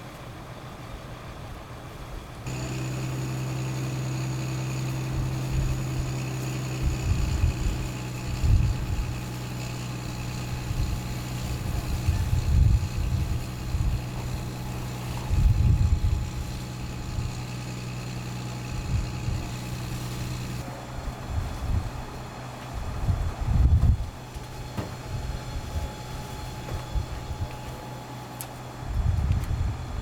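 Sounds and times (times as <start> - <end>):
fire truck engine running: 1.8 - 30.0
wind buffeting microphone: 6.8 - 9.1, 10.6 - 14.4, 15.2 - 16.4, 22.8 - 24.2, 28.8 - 30.0.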